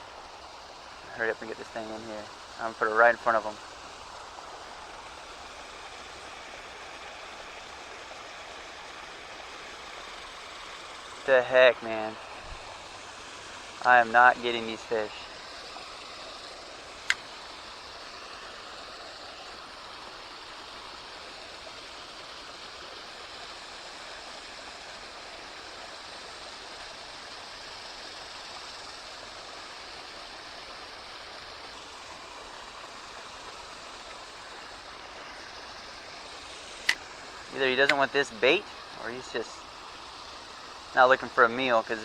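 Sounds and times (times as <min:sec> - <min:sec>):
creek water rushing: 0:00.0 - 0:42.0
sharp click: 0:37.9 - 0:38.1.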